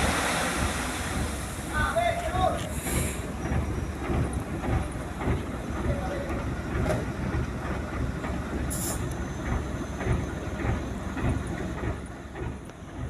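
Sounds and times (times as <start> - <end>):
air brake hiss: 2.7 - 3.3, 8.7 - 9.0.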